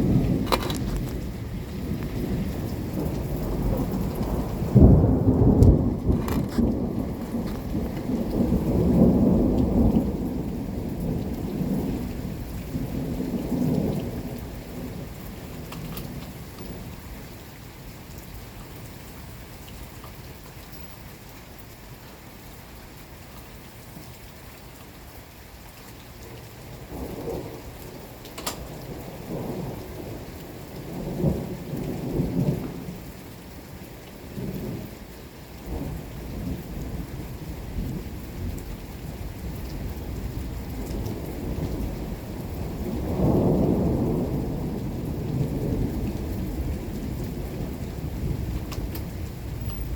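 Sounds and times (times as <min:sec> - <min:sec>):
rolling thunder: 0:00.0 - 0:17.0, 0:26.8 - 0:33.0, 0:35.7 - 0:49.9
steady rain: 0:00.0 - 0:49.9.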